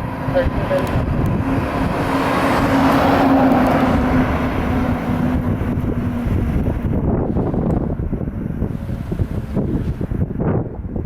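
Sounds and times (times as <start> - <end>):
fire engine driving past: 0.0 - 7.0
low hum: 0.0 - 11.0
wind on microphone: 0.0 - 11.0.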